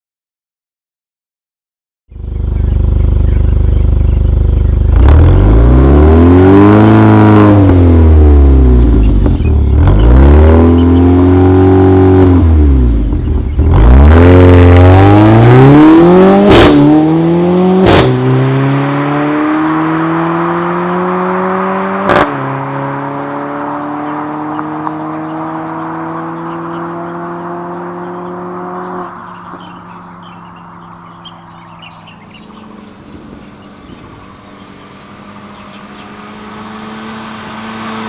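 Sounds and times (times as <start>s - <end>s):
car engine revving: 2.2s - 38.0s.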